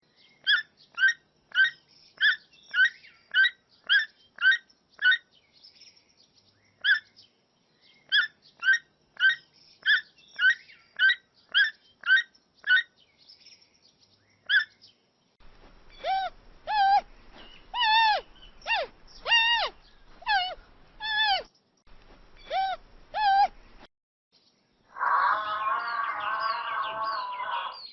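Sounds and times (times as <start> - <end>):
bird short sharp calls: 15.6 - 21.5, 22.3 - 23.9
animal rising and falling calls: 15.9 - 21.4, 24.9 - 27.9.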